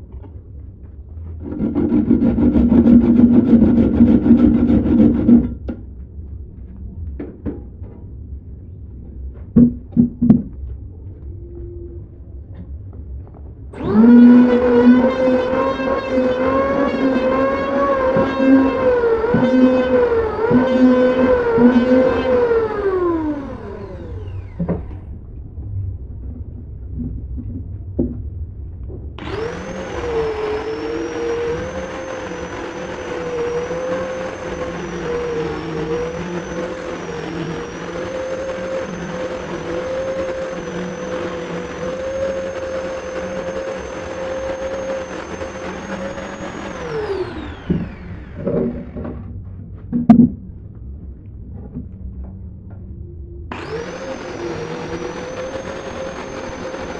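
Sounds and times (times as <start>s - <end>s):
power tool high whine: 13.8s - 25.0s, 29.2s - 49.2s, 53.5s - 56.9s.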